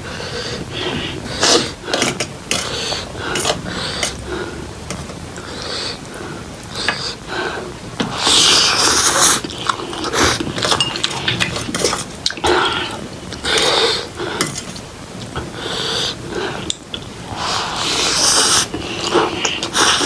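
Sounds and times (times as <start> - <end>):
noodle slurping: 0.0 - 14.8, 15.4 - 20.0.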